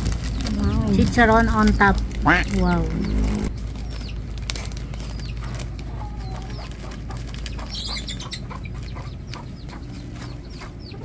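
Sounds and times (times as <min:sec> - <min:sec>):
wind rumble on microphone: 0:00.0 - 0:04.0
small birds chirping: 0:00.0 - 0:11.0.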